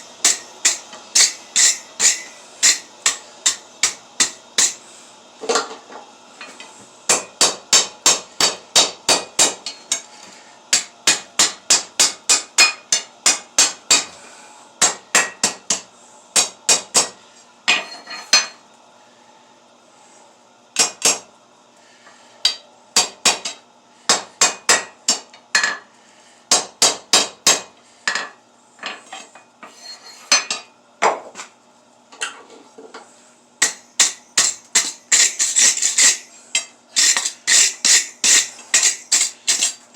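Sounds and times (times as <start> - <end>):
hammer striking steel on anvil: 0.2 - 4.8, 7.1 - 10.1, 10.7 - 14.1, 14.8 - 15.8, 16.4 - 18.5, 20.8 - 21.2, 22.4 - 25.8, 33.6 - 39.8.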